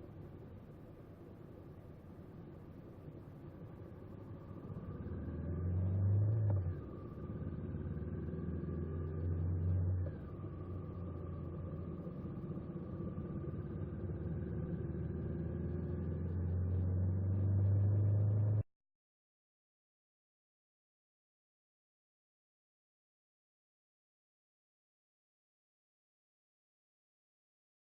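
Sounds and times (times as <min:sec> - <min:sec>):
motorcycle engine accelerating: 0:04.6 - 0:18.6.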